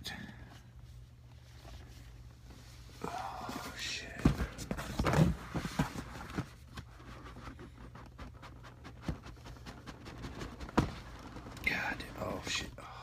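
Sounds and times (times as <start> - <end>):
packaging knocks and rustles: 3.6 - 11.7.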